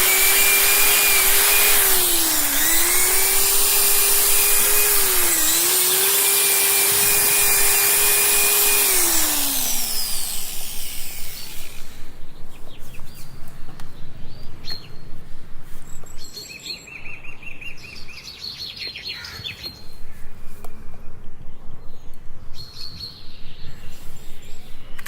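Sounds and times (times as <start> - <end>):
power tool spinning down: 0.0 - 12.2
small birds chirping: 7.7 - 15.2.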